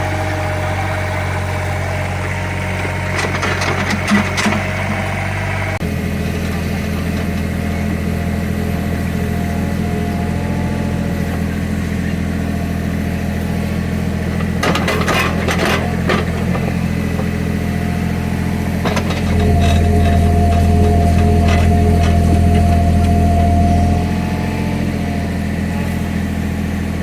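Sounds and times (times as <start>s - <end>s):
engine whine under load: 0.0s - 27.0s
excavator diesel engine running: 0.0s - 27.0s
metal clanks and scrapes: 14.5s - 16.8s, 18.8s - 24.0s.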